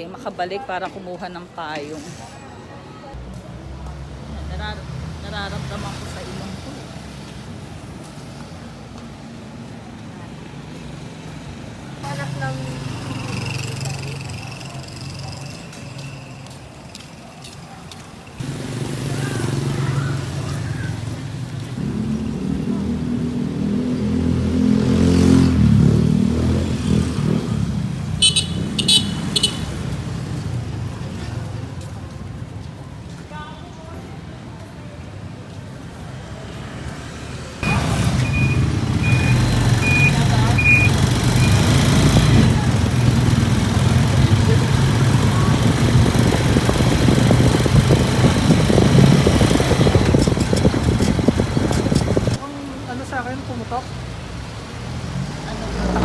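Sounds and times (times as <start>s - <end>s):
street noise: 0.0s - 56.0s
vehicle engine passing by: 18.4s - 32.0s, 36.3s - 56.0s
short high-pitched horn beeps: 28.2s - 29.8s.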